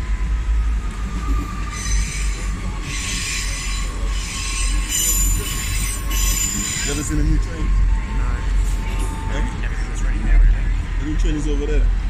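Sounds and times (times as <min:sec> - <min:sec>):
low train rumble: 0:00.0 - 0:12.0
train wheels squealing on rails: 0:00.5 - 0:09.7.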